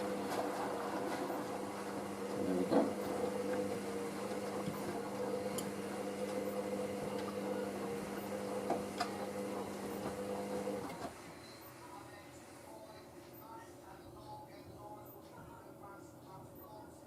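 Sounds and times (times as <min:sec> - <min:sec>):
washing machine humming: 0:00.0 - 0:13.6.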